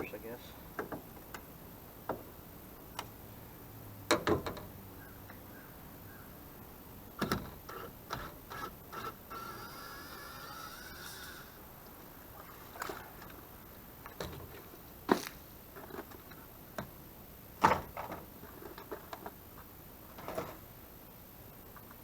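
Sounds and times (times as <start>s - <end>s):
knocks and clunks on boat deck: 0.7s - 2.4s, 4.0s - 5.4s, 7.1s - 8.4s, 12.4s - 20.6s.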